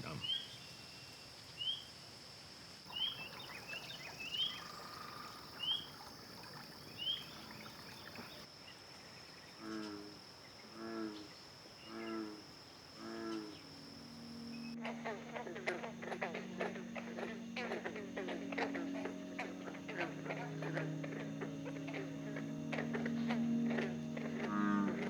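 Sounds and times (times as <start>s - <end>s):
insect drone: 0.0s - 25.0s
bird chirping: 2.9s - 8.5s, 13.0s - 25.0s
throaty animal calls: 13.1s - 25.0s
low steady hum: 13.2s - 25.0s.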